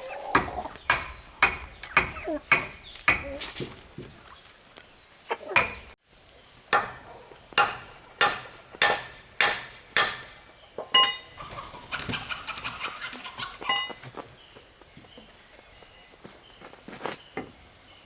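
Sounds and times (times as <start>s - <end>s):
hammer striking wood: 0.4s - 3.8s, 5.6s - 6.0s, 6.7s - 10.4s.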